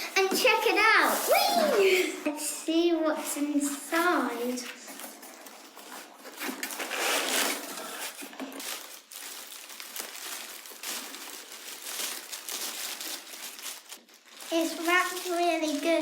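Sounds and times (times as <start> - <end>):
packaging crinkling and rustling: 4.0 - 16.0.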